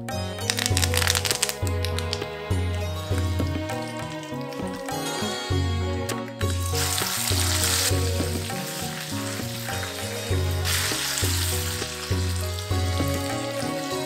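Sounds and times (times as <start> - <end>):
paste sizzling in hot oil: 6.6 - 14.0.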